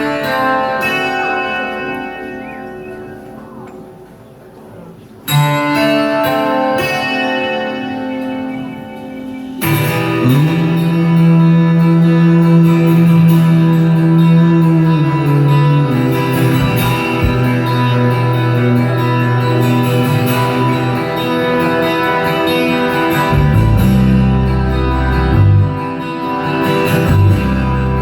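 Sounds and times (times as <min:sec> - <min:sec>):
guitar chords ringing: 0:00.0 - 0:28.0
live rock band playing: 0:05.4 - 0:28.0
heavy low bass: 0:10.0 - 0:22.0, 0:23.2 - 0:25.9, 0:26.9 - 0:28.0.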